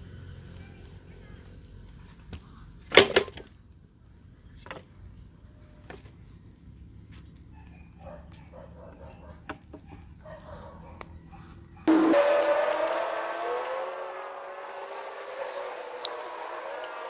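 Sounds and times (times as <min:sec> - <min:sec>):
high-pitched drone: 0:11.9 - 0:17.0.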